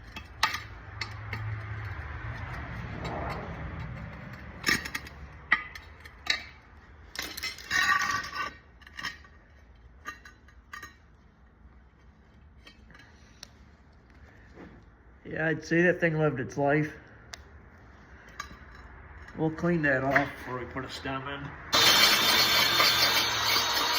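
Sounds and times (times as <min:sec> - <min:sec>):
tool scraping on wheel: 0:00.0 - 0:06.6, 0:07.2 - 0:11.1, 0:17.8 - 0:21.1, 0:21.7 - 0:23.9
metal tools clinking: 0:04.0 - 0:09.3.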